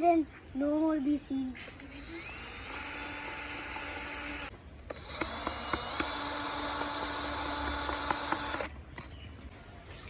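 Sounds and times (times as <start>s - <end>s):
power drill running: 1.8s - 8.7s.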